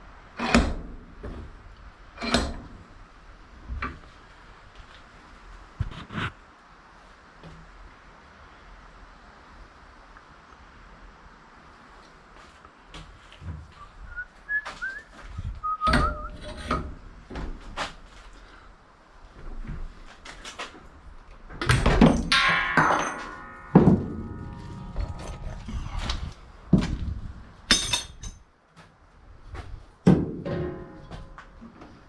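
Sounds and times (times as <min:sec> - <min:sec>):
metal scrap clanking: 0:15.9 - 0:17.0, 0:22.0 - 0:26.9, 0:27.7 - 0:28.4, 0:30.1 - 0:31.7.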